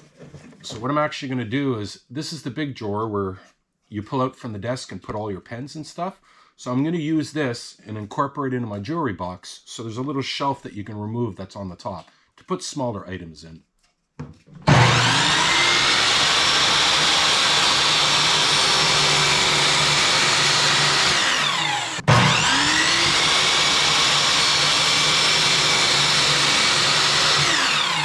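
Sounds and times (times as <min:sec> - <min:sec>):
electric power tool motor: 0:14.6 - 0:28.0.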